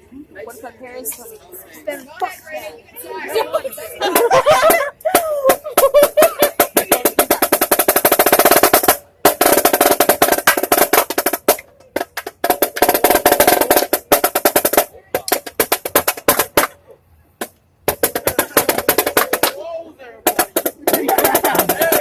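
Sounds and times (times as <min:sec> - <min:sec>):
snare drum rolls: 0:04.1 - 0:16.8, 0:17.4 - 0:19.6, 0:20.3 - 0:22.0.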